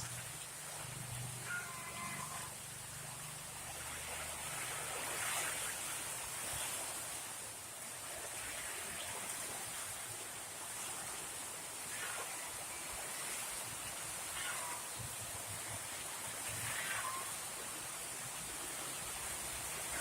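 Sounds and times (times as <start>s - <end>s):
heavy rain pouring: 11.9s - 20.0s.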